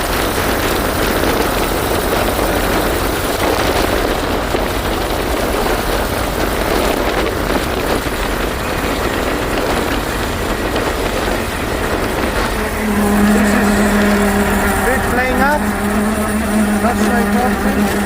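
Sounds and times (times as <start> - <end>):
car engine running: 0.0 - 18.0
steady humming tone: 0.0 - 18.0
wind and road noise: 0.0 - 18.0.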